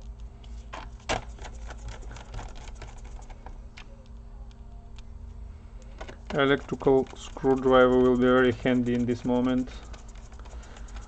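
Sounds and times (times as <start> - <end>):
screwdriver clicking on plastic: 6.0 - 11.0.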